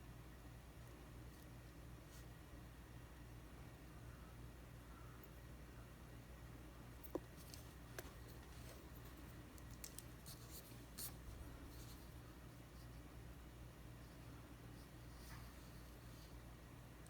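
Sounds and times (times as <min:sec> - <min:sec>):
steady low hum: 0:00.0 - 0:17.0
light scratching of plastic parts: 0:07.0 - 0:13.1, 0:14.0 - 0:16.5.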